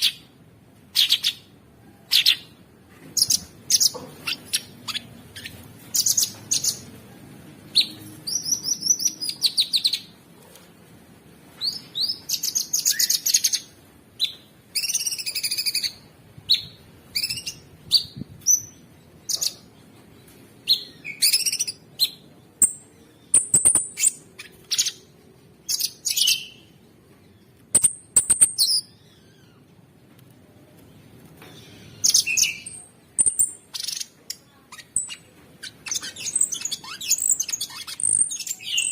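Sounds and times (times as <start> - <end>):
songbird trilling and chirping: 11.7 - 19.7, 20.6 - 26.8, 27.7 - 29.2, 31.5 - 38.9.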